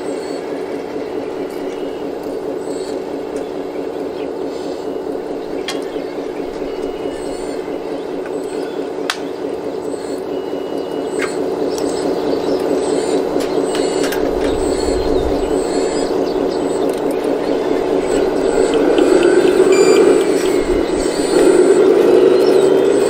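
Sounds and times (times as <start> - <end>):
pump motor whirring: 0.0 - 23.0
sharp clicks: 5.4 - 10.2, 10.8 - 23.0.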